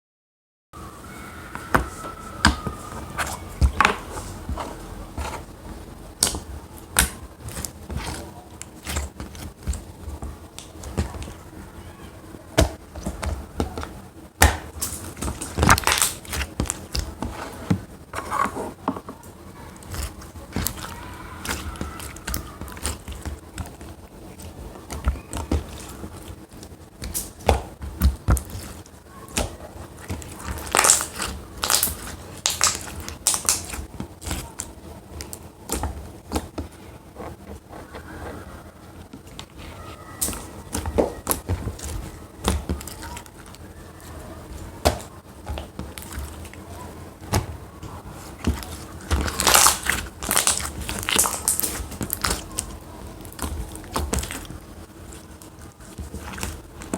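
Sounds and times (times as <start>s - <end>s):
slime squeezed by hand: 48.6s - 52.5s.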